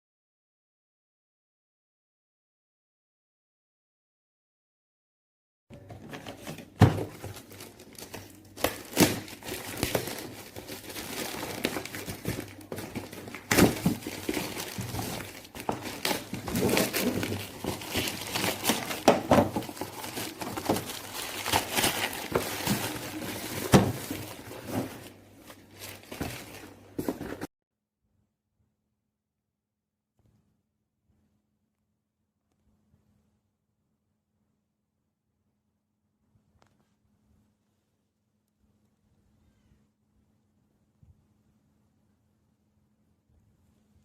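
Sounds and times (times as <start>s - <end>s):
packaging crinkling: 6.1s - 27.5s.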